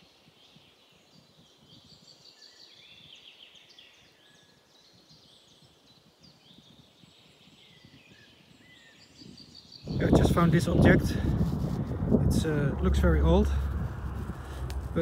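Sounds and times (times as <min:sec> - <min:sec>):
faint birdsong chirps and trills: 0:00.0 - 0:10.7.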